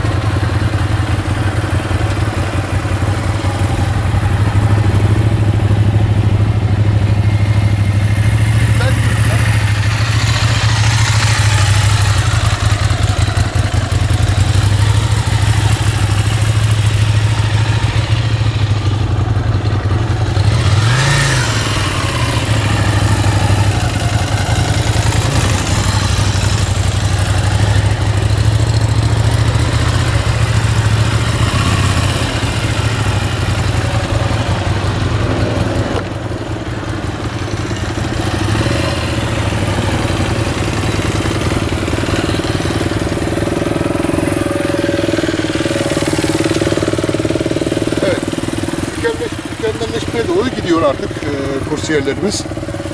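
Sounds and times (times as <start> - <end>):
motorcycle engine revving: 0.0 - 52.9
motorcycle engines at low revs: 0.0 - 52.9.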